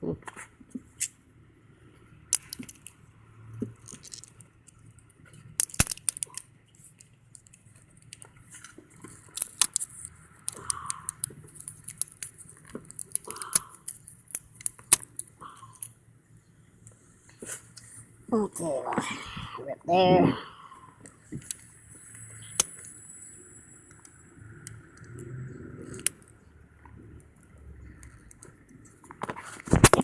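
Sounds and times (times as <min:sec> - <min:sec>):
tape peeling with crackling clicks: 0:03.8 - 0:16.0, 0:21.0 - 0:22.9, 0:25.8 - 0:26.4, 0:27.9 - 0:30.0.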